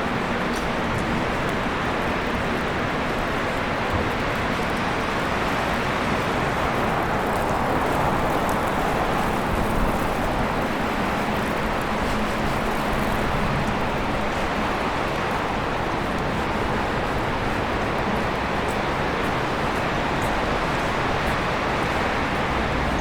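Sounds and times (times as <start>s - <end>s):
city traffic noise: 0.0s - 23.0s.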